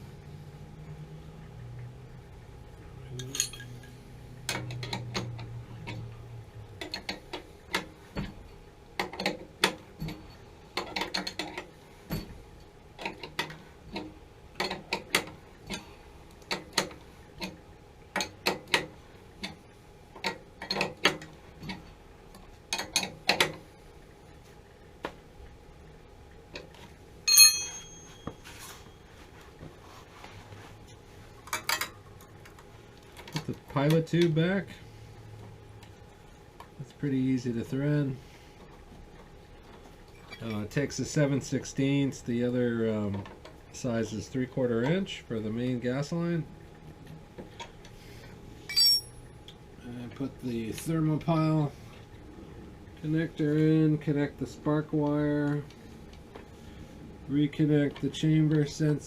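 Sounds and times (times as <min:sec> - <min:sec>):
metal striking metal: 0:27.3 - 0:28.2, 0:48.7 - 0:49.2.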